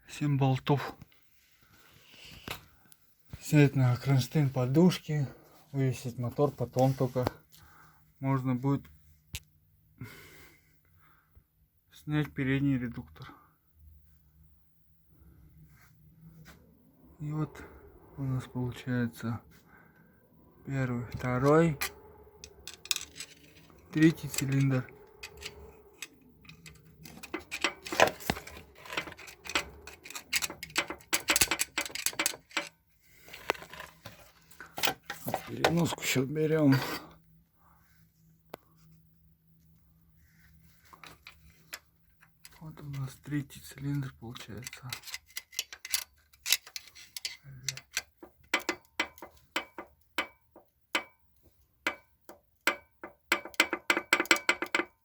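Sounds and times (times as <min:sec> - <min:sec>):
hand tools clicking and knocking: 0:21.1 - 0:36.0, 0:44.6 - 0:51.2, 0:51.8 - 0:55.0
sharp metallic clicks: 0:21.2 - 0:32.8.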